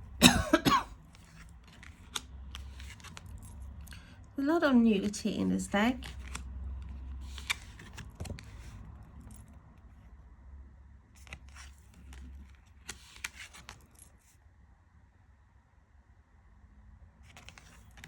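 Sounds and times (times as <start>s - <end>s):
cards clicking and sliding: 1.0s - 3.7s, 5.9s - 9.4s, 11.2s - 14.1s, 17.3s - 18.0s.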